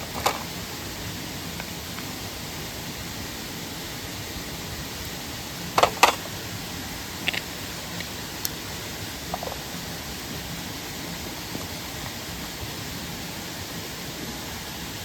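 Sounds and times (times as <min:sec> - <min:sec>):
mountain stream and waterfall rushing: 0:00.0 - 0:15.0.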